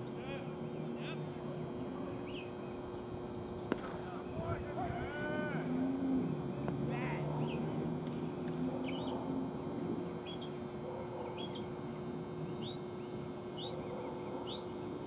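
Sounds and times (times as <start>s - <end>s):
steady low hum: 0.0s - 15.0s
bird chirping: 2.2s - 2.8s, 8.8s - 9.2s, 10.2s - 10.6s, 11.2s - 11.8s, 12.4s - 14.8s.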